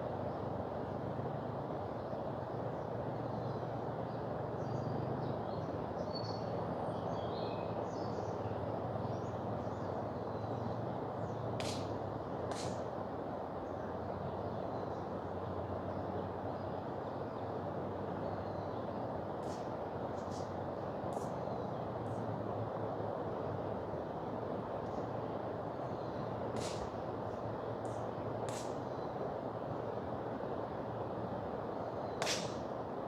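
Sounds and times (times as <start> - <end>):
sharp snaps: 11.6 - 12.9, 19.4 - 20.5, 26.5 - 27.0, 27.8 - 28.9, 32.2 - 32.8.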